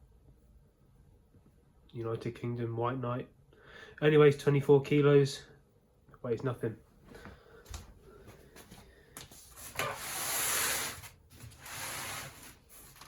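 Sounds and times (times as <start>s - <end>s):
packaging rubbing and scraping: 9.6s - 13.0s.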